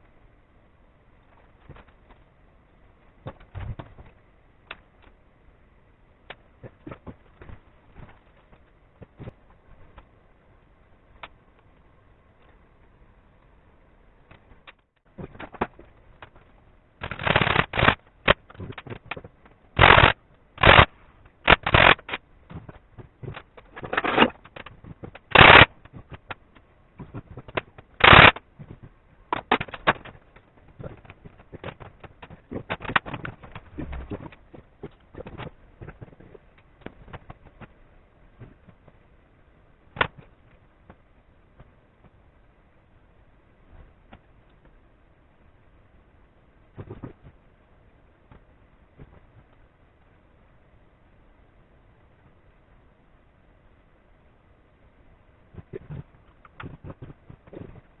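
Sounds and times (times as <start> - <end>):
irregular clicks: 14.3 - 37.8.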